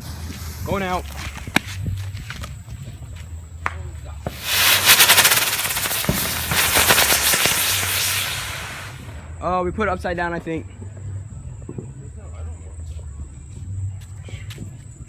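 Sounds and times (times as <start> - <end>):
firework crackling hiss: 0.0 - 9.4.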